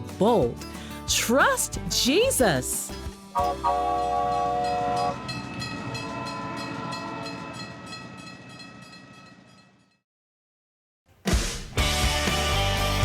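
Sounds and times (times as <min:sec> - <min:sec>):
steady high tone: 0:03.4 - 0:08.8.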